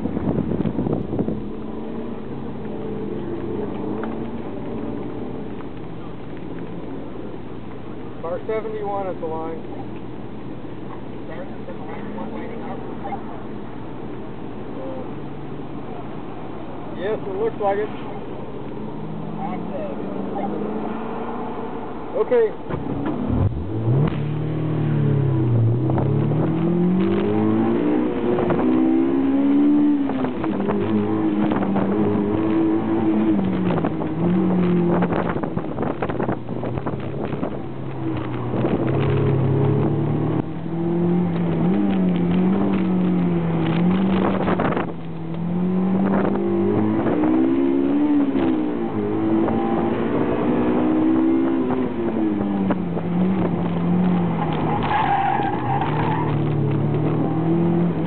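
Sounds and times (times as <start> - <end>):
car engine revving hard: 22.8 - 36.3, 38.2 - 58.0.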